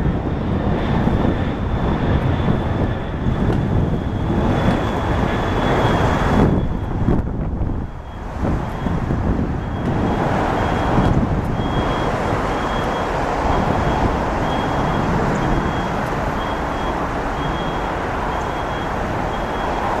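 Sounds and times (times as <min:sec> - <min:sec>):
jet engine roar: 0:00.0 - 0:20.0
high repeating beep: 0:11.6 - 0:19.8.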